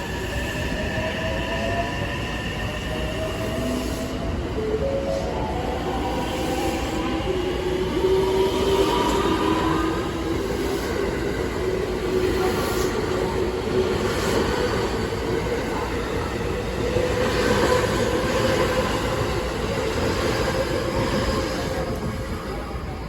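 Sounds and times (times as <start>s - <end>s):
train wheels on rails: 0.0s - 23.0s.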